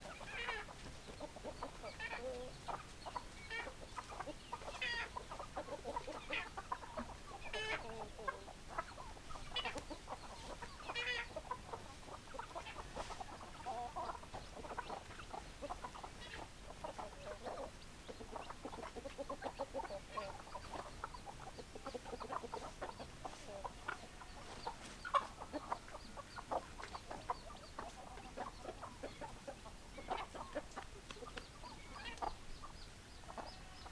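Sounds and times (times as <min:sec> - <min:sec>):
hens clucking: 0:00.0 - 0:33.9.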